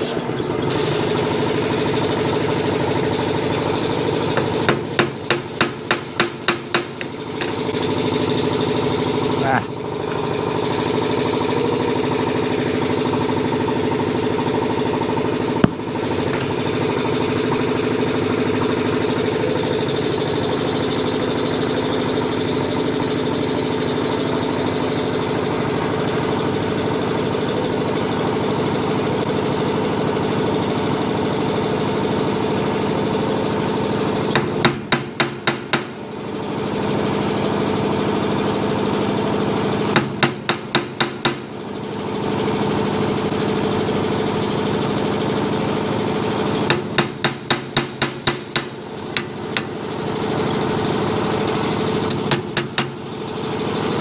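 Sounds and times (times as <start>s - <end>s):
machine droning: 0.3s - 28.0s.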